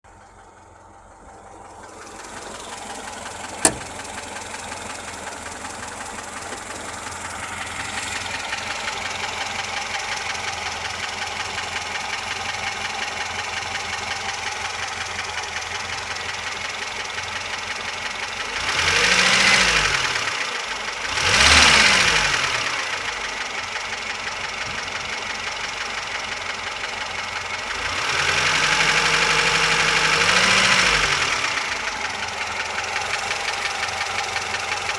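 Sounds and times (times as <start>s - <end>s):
car engine idling with knock: 0.1s - 18.5s, 23.0s - 30.0s, 31.3s - 34.9s
sharp click: 3.6s - 4.0s
engine revving: 18.5s - 23.1s, 27.7s - 34.9s.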